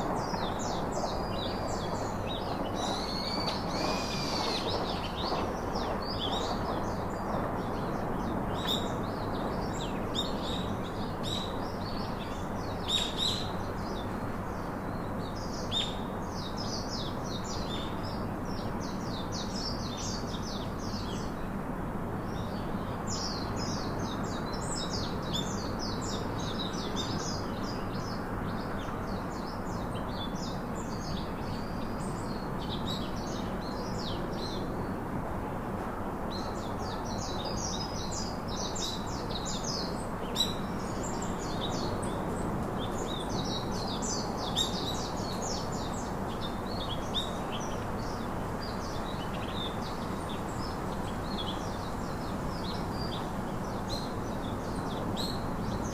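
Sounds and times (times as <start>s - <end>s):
small birds chirping: 0.0s - 21.4s, 36.3s - 55.9s
outdoor background rush: 0.0s - 55.9s.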